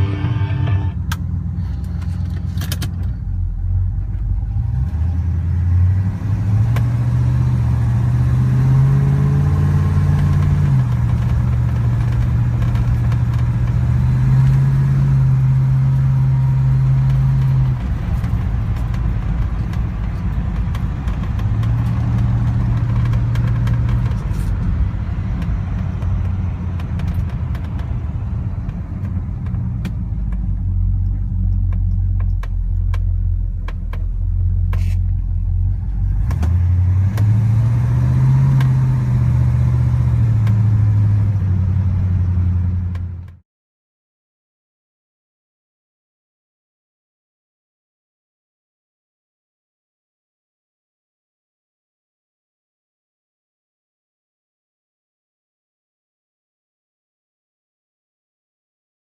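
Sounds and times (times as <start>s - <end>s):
car engine revving and idling: 0.0s - 43.4s.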